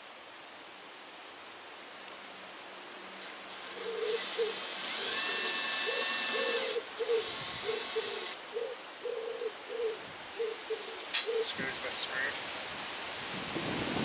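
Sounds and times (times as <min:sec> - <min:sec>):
power drill whining: 0:03.6 - 0:08.4
pigeon cooing: 0:03.8 - 0:11.6.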